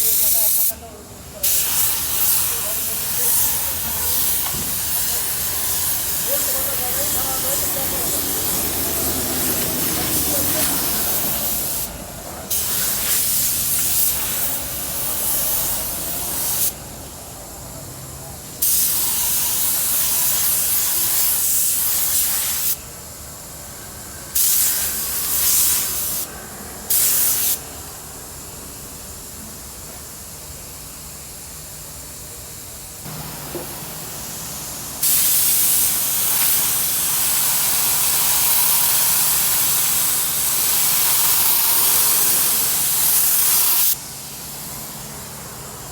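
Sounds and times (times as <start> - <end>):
paint spray gun hissing: 0.0 - 16.8, 18.6 - 22.8, 24.3 - 26.3, 26.9 - 27.6, 33.0 - 45.8.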